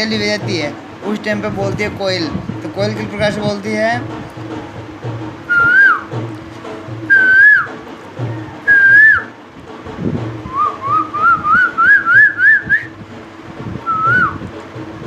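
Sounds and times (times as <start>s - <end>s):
man whistling bird call: 5.5s - 6.1s, 7.1s - 7.8s, 8.4s - 9.3s, 10.5s - 13.0s, 13.9s - 14.4s.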